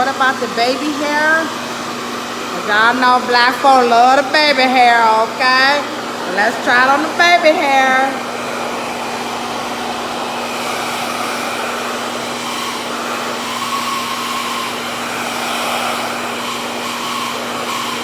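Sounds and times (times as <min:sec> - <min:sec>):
hair dryer rushing air: 0:00.0 - 0:18.0
low motor hum: 0:06.1 - 0:13.4.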